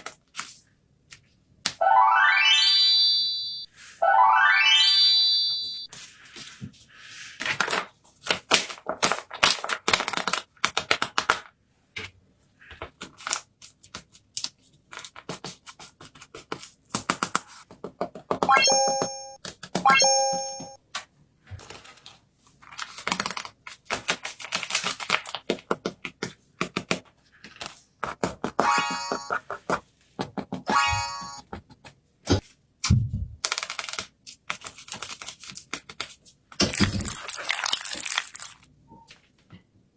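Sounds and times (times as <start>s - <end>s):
paper crinkling and rustling: 5.9s - 11.5s, 21.0s - 25.5s, 33.4s - 39.3s
paper pieces tapping and clicking: 7.4s - 11.6s, 12.6s - 19.8s, 22.6s - 30.7s, 33.4s - 37.3s.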